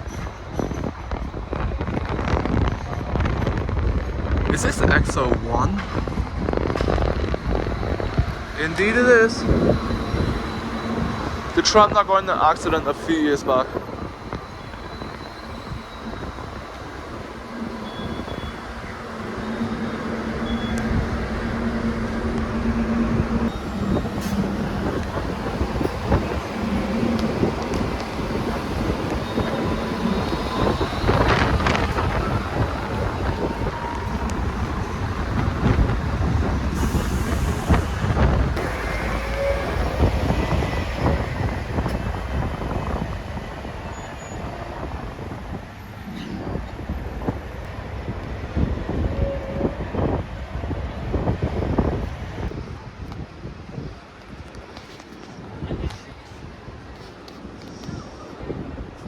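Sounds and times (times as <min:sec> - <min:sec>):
tram hum: 0:00.0 - 0:59.0
tram wheels rumbling: 0:00.0 - 0:59.0
wind on microphone: 0:00.0 - 0:59.0
vehicle passing: 0:07.4 - 0:36.7.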